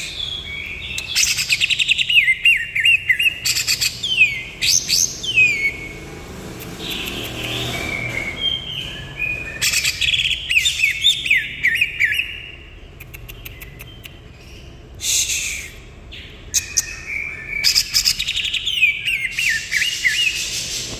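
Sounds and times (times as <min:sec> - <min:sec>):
bird singing rapid whistled notes: 0:00.0 - 0:12.8, 0:13.4 - 0:20.9.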